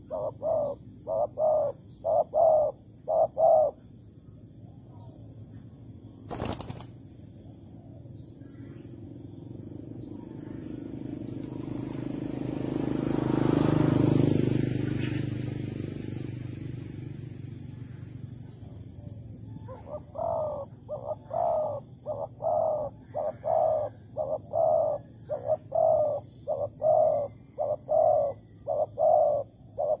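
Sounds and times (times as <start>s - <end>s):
dove cooing: 0.0s - 3.9s, 18.7s - 30.0s.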